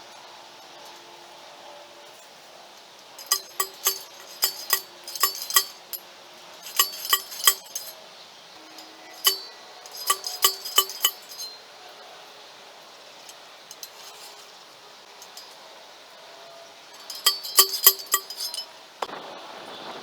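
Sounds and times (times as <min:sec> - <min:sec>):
metal object clinking: 0:03.2 - 0:06.0, 0:06.6 - 0:08.0, 0:08.7 - 0:11.6, 0:13.3 - 0:14.6, 0:17.0 - 0:18.8.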